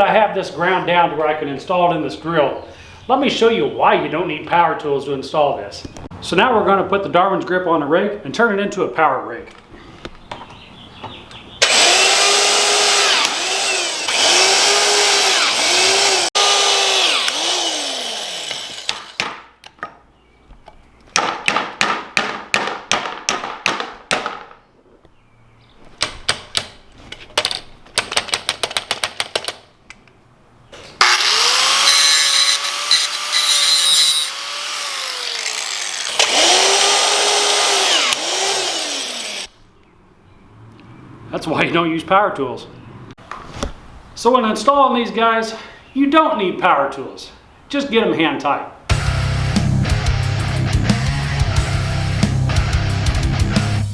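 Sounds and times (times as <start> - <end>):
power drill motor whine: 11.6 - 19.2, 31.0 - 39.5.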